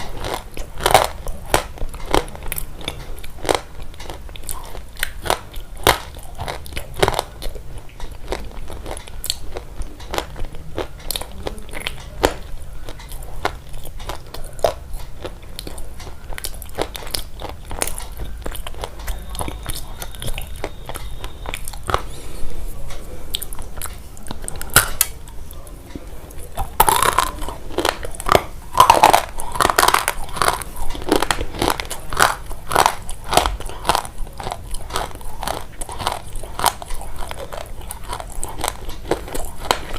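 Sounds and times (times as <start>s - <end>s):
close crisp crunching: 0.0s - 39.9s.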